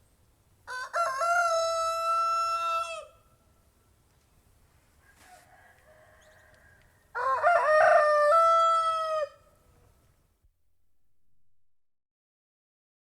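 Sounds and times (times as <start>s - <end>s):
rooster crowing: 0.7s - 3.2s, 5.0s - 9.6s
faint rooster crow: 0.7s - 3.4s, 4.8s - 10.0s.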